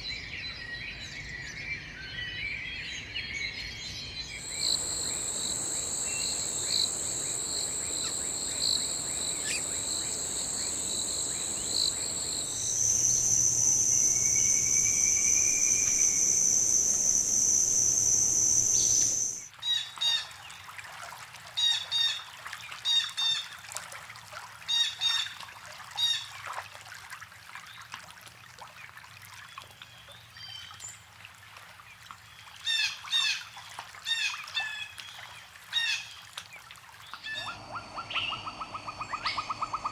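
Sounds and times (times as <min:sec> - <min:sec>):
birds chirping: 0:04.4 - 0:19.5, 0:37.3 - 0:39.9
insects buzzing: 0:04.4 - 0:19.5, 0:37.4 - 0:39.9.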